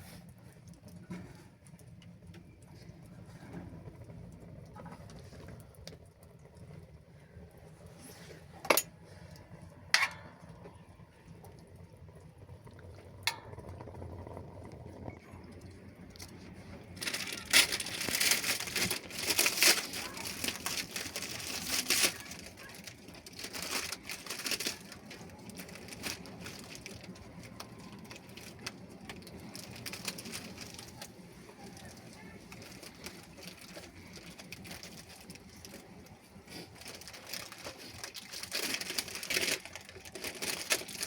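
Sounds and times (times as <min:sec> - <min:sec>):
crinkling and rustling: 0:00.0 - 0:41.0.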